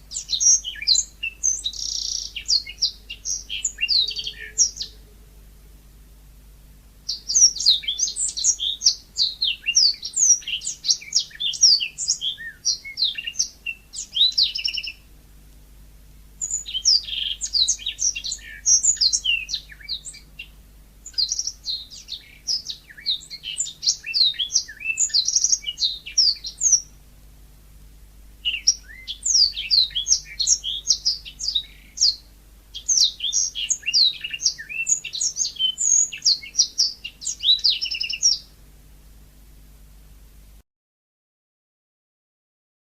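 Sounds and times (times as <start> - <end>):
canary singing: 0.0 - 5.3, 7.1 - 15.1, 16.4 - 27.0, 28.4 - 38.6.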